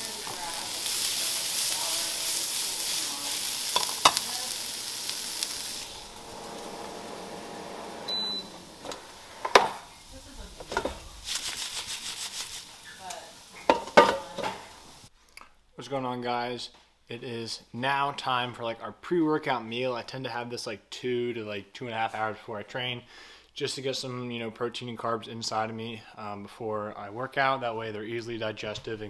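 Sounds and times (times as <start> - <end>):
food sizzling in a pan: 0.0 - 15.1
utensils clattering on dishes: 13.6 - 14.6.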